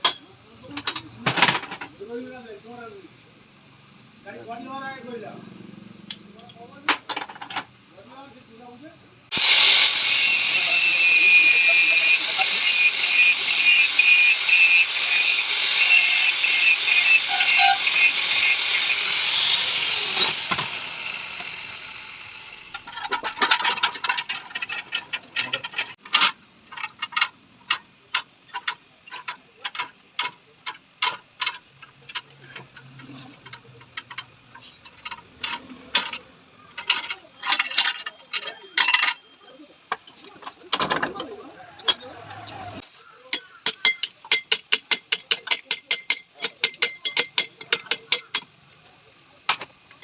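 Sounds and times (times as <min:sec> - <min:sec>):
hand tools clicking on metal: 0:05.8 - 0:07.6, 0:22.5 - 0:42.6, 0:43.3 - 0:48.9.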